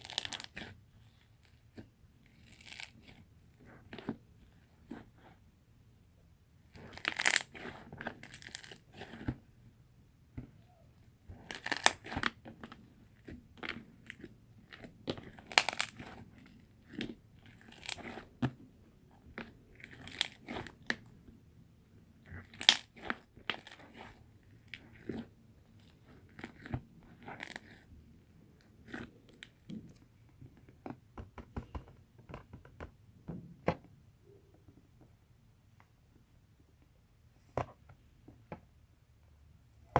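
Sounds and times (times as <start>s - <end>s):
slime squished crackling: 11.3s - 18.5s, 19.3s - 21.1s, 22.2s - 27.9s.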